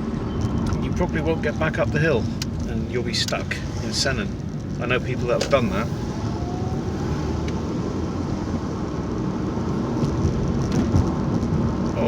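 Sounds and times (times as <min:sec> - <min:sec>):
car engine and tyre rumble: 0:00.0 - 0:12.0
light knocks from bumpy road: 0:10.0 - 0:11.9.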